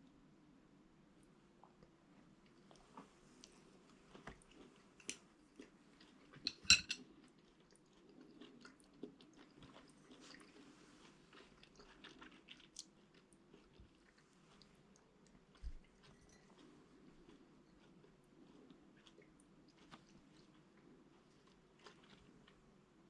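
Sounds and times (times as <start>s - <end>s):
soft tableware clicks: 6.5s - 7.0s.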